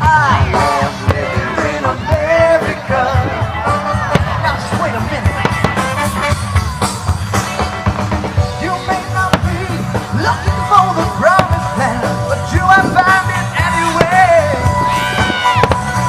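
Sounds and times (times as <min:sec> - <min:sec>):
person singing: 0:00.0 - 0:04.8, 0:08.6 - 0:16.0
drums: 0:00.0 - 0:16.0
rock band playing: 0:00.0 - 0:16.0.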